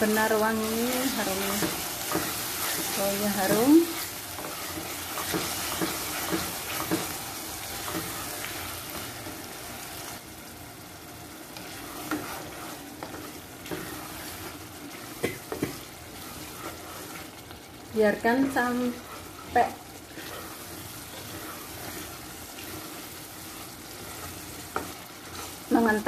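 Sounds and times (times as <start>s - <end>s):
sauce sizzling in oil: 0.0s - 26.0s
spatula scraping and knocking pot: 1.2s - 7.2s, 11.6s - 17.6s, 18.4s - 26.0s.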